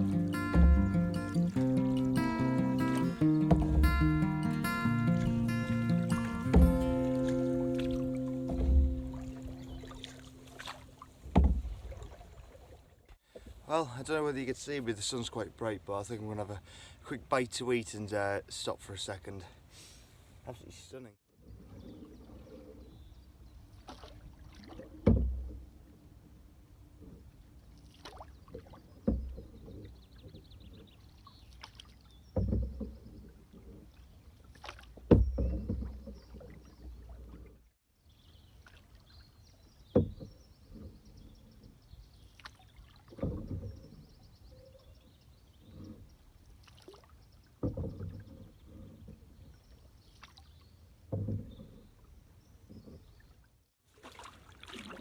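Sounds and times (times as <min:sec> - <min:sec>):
water sloshing: 0:00.0 - 0:16.4, 0:21.4 - 0:55.0
knock on canoe side: 0:03.4 - 0:04.1, 0:06.4 - 0:10.2, 0:11.3 - 0:11.8, 0:25.0 - 0:25.6, 0:35.1 - 0:35.9, 0:39.9 - 0:40.3.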